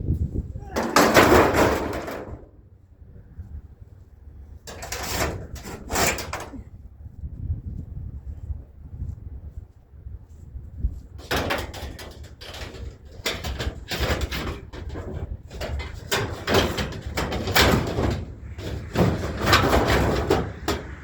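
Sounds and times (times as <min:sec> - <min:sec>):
scrap scraping and clattering: 0:00.7 - 0:02.5, 0:04.6 - 0:06.7, 0:11.2 - 0:21.0.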